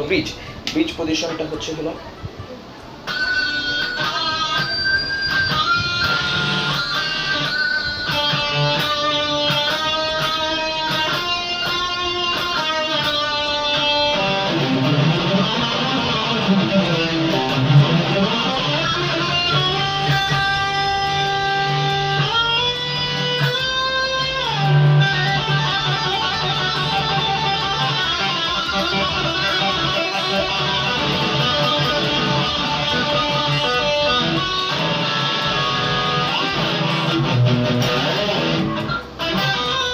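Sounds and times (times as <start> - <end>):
electric guitar playing: 2.6 - 39.9.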